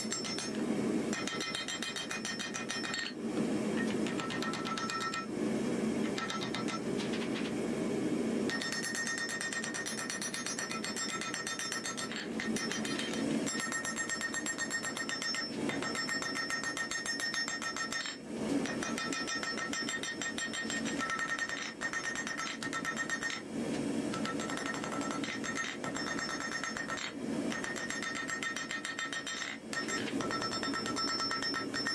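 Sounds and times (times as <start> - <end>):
hammer striking steel on anvil: 0.0 - 3.2, 3.8 - 5.3, 6.0 - 7.3, 8.5 - 23.5, 24.1 - 31.9.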